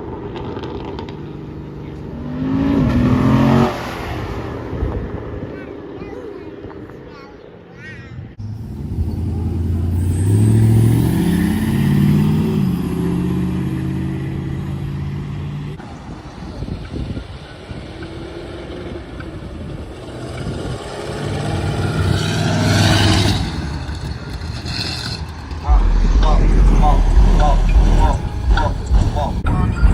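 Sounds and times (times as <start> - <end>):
car engines accelerating: 0.0 - 5.9, 8.4 - 29.9.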